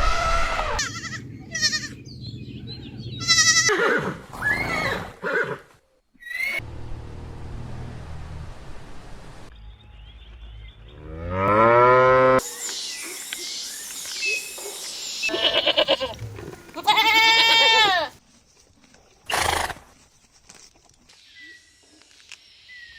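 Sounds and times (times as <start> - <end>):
farm animals calling: 0.1 - 2.0, 3.1 - 5.5, 15.3 - 18.2.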